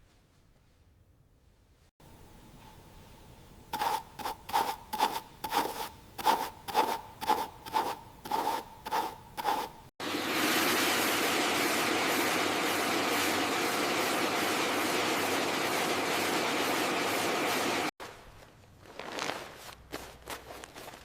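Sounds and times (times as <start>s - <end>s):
sharp metallic tool strokes: 3.7s - 9.9s.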